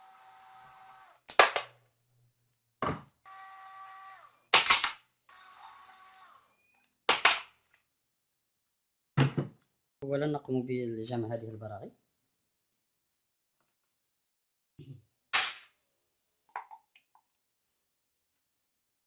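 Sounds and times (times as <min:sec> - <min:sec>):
electric screwdriver whining: 0:00.0 - 0:01.3, 0:03.2 - 0:04.5, 0:05.3 - 0:06.6.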